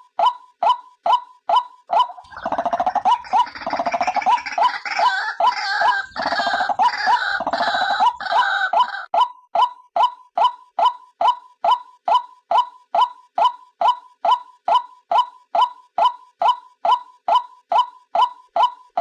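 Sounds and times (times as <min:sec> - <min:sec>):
waterhen calling: 0:01.9 - 0:09.1.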